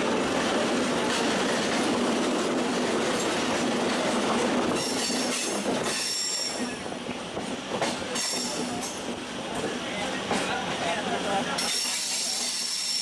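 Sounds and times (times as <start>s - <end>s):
electric train rumbling on track: 0.0s - 13.0s
train wheels squealing: 4.7s - 7.0s, 11.6s - 13.0s.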